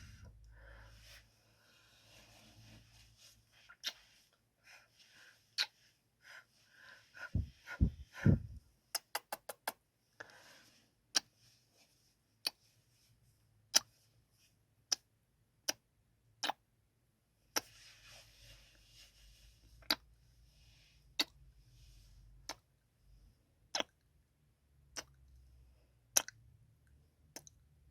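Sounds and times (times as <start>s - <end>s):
soft breaths: 0.0s - 8.7s, 10.1s - 14.6s, 17.6s - 23.5s
kissing lip smacks: 3.8s - 4.0s, 5.6s - 5.8s, 8.9s - 9.8s, 13.7s - 13.9s, 23.7s - 24.0s, 25.0s - 25.2s, 26.2s - 26.4s
low thumps: 7.4s - 8.6s.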